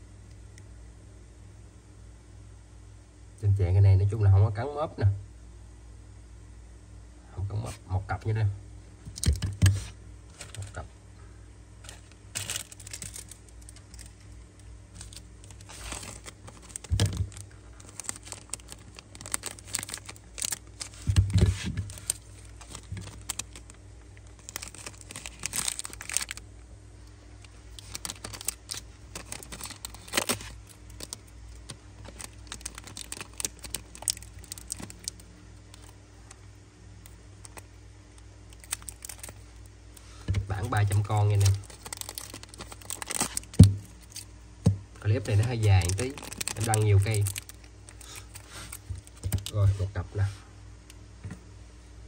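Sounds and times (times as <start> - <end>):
packaging crinkling and rustling: 9.1 - 10.8, 11.8 - 26.4, 27.4 - 37.7, 38.5 - 50.0.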